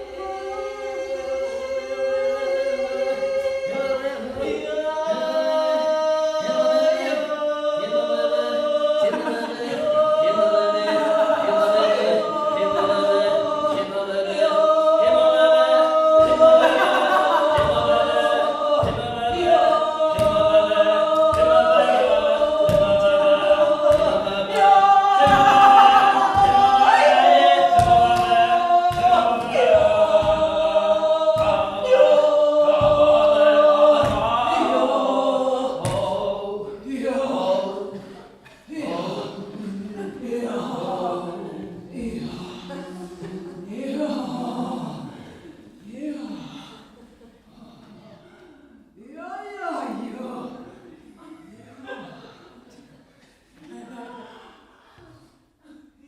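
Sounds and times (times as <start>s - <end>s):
choir holding long notes: 0.0s - 56.0s.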